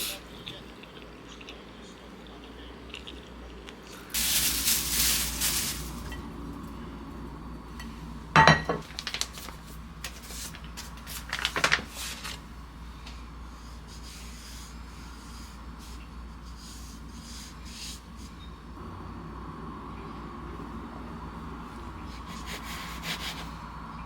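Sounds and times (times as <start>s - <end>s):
short spray hiss: 4.2s - 6.1s
kitchenware clicks and clatter: 7.8s - 9.6s.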